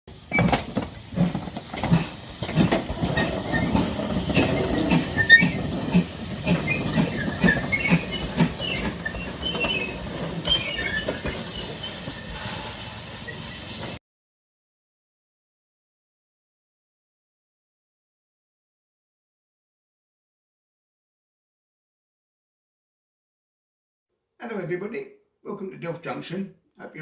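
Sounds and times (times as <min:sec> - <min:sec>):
steam hiss: 0:00.1 - 0:14.0
steam train chuffing: 0:00.1 - 0:14.0.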